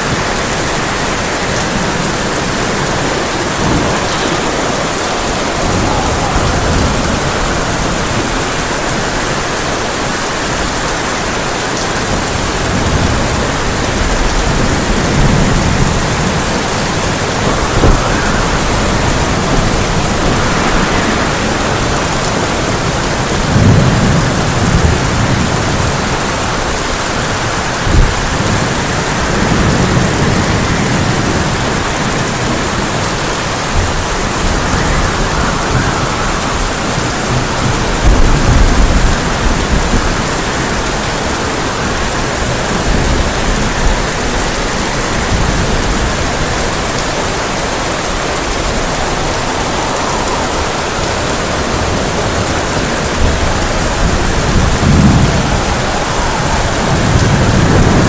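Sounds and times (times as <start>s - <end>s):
sharp thunder cracks: 0.0s - 9.8s, 12.1s - 41.3s
heavy rain on a tin roof: 0.0s - 58.0s
thunder rumbling: 0.0s - 58.0s.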